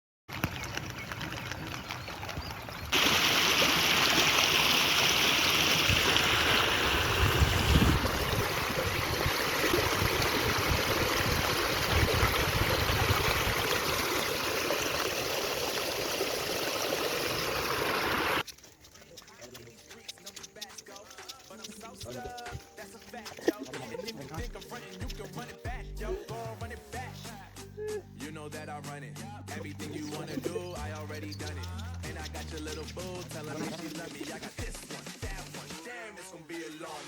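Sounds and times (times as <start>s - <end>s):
stream rushing: 2.9s - 18.4s.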